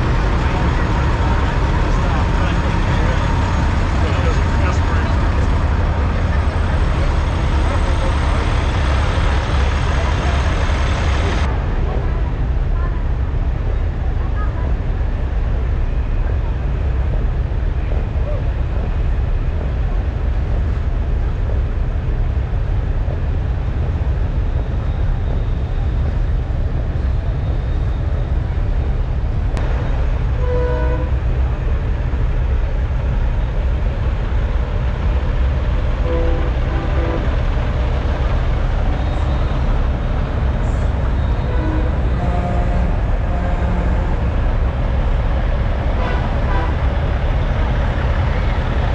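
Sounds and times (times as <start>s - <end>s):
truck engines idling: 0.0s - 11.6s, 29.3s - 48.9s
truck horn toots: 41.2s - 44.2s.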